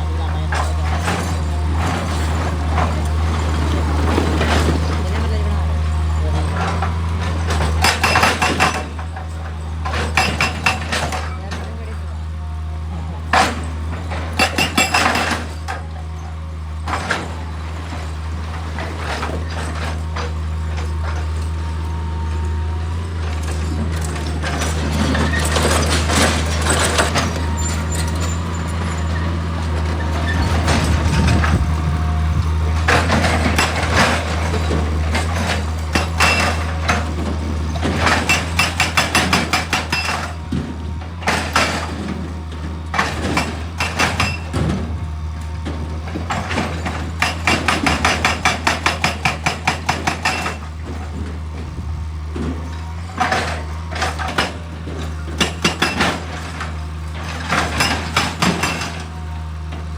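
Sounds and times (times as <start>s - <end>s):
excavator diesel engine running: 0.0s - 59.9s
loud clattering: 22.9s - 59.1s.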